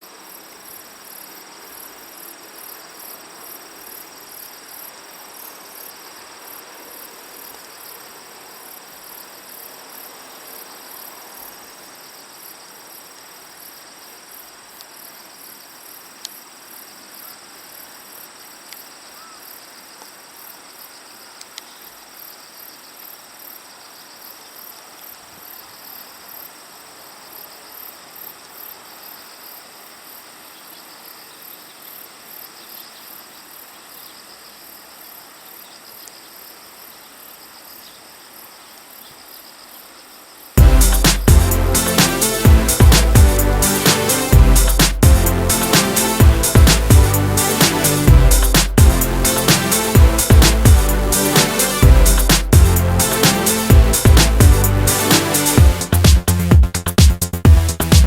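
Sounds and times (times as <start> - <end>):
insects chirping: 0.0 - 46.6
faint clicks: 21.4 - 21.7
steady rushing noise: 40.6 - 56.3.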